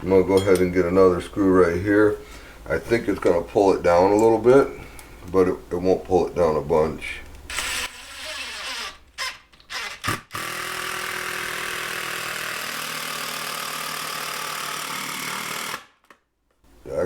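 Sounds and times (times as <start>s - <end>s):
power screwdriver driving screw: 7.5s - 15.9s.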